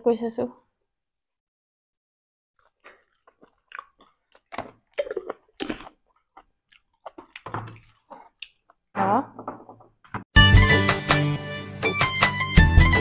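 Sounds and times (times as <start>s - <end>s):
chewing and mouth smacks: 2.6s - 8.9s.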